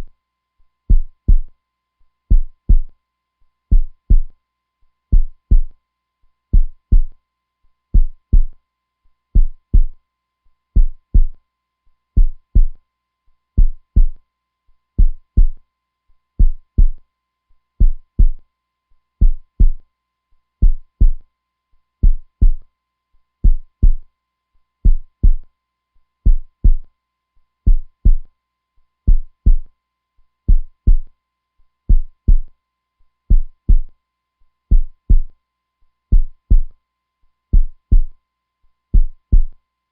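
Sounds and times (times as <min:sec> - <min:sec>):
heartbeat thumps: 0:00.9 - 0:01.5, 0:02.3 - 0:02.9, 0:03.7 - 0:04.3, 0:05.1 - 0:05.7, 0:06.6 - 0:07.1, 0:08.0 - 0:08.6, 0:09.4 - 0:10.0, 0:10.8 - 0:11.4, 0:12.2 - 0:12.8, 0:13.6 - 0:14.2, 0:15.0 - 0:15.6, 0:16.4 - 0:17.0, 0:17.8 - 0:18.4, 0:19.2 - 0:19.8, 0:20.6 - 0:21.2, 0:22.0 - 0:22.6, 0:23.4 - 0:24.0, 0:24.8 - 0:25.4, 0:26.3 - 0:26.8, 0:27.7 - 0:28.3, 0:29.1 - 0:29.7, 0:30.5 - 0:31.1, 0:31.9 - 0:32.5, 0:33.3 - 0:33.9, 0:34.7 - 0:35.3, 0:36.1 - 0:36.7, 0:37.5 - 0:38.1, 0:39.0 - 0:39.5.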